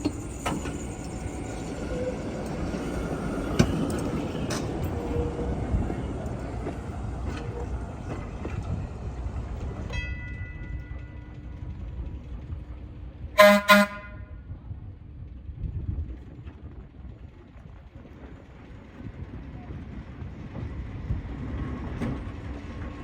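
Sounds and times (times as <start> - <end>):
horn toots: 13.4 - 14.3.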